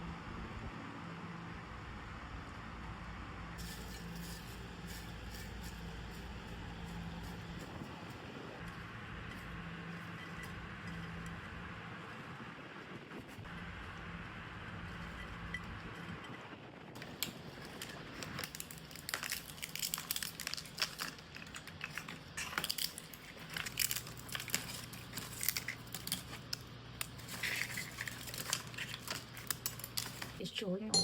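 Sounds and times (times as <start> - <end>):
eggshells crunching by hand: 17.0 - 30.4.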